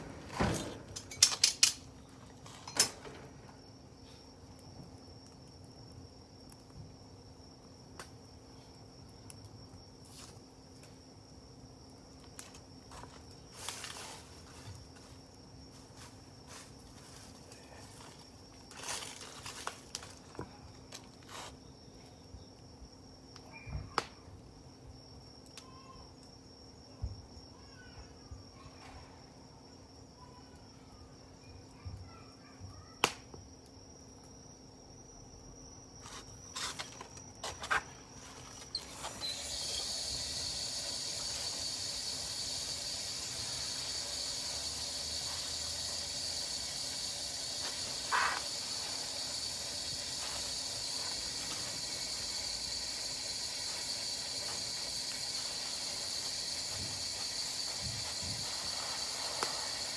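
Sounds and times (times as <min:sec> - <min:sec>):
campfire crackling: 0:38.4 - 0:59.9.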